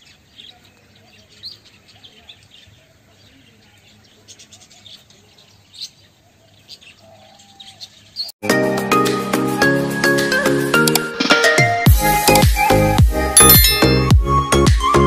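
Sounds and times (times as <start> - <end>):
birds chirping: 0.0 - 8.4, 13.4 - 14.1.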